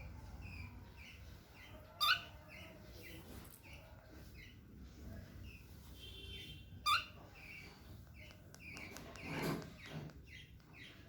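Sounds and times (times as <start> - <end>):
cockatiel chirping: 0.4 - 2.7, 6.8 - 11.0.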